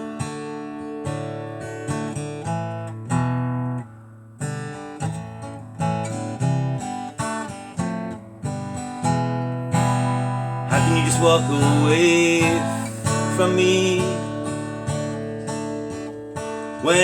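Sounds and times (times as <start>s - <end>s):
acoustic guitar chords: 0.0s - 17.0s
person singing a ballad: 10.7s - 14.9s, 16.8s - 17.0s.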